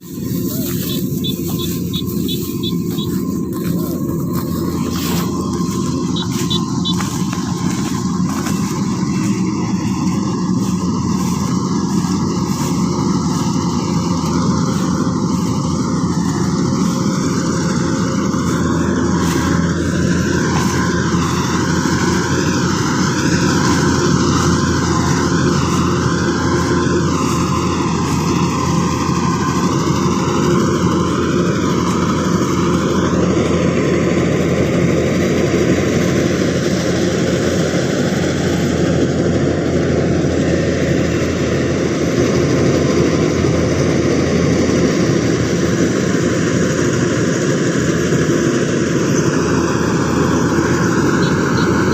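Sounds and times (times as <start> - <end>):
harvesting machine engine running: 0.0 - 51.9.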